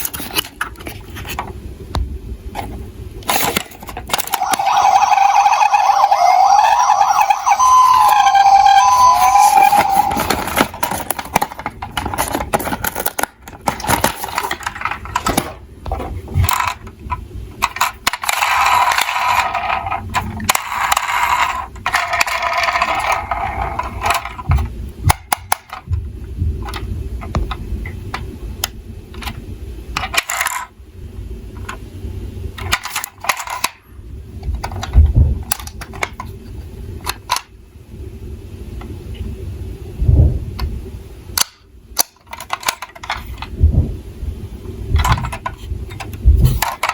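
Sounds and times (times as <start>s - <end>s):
metal toy cars clattering: 9.6s - 16.9s, 45.0s - 46.9s.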